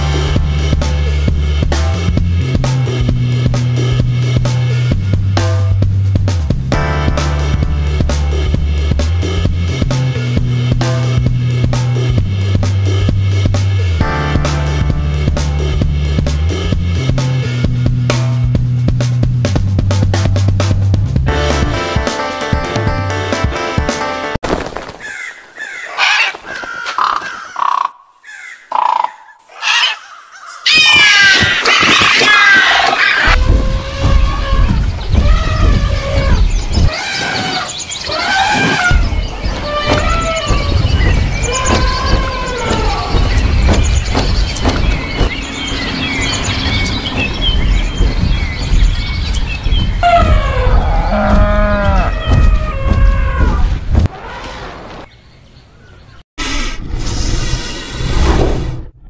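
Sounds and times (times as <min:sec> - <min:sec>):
crows cawing: 0:25.0 - 0:33.3
birds chirping: 0:25.0 - 0:56.2
low rumble: 0:33.3 - 0:36.9, 0:38.9 - 0:54.1
cow mooing: 0:50.0 - 0:52.3
dinosaur roar: 0:50.0 - 0:54.8.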